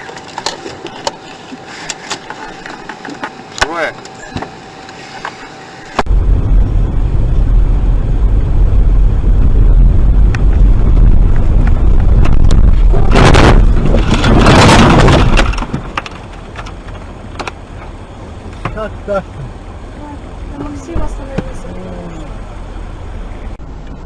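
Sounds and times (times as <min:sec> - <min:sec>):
vehicle low rumble: 0:00.0 - 0:24.0.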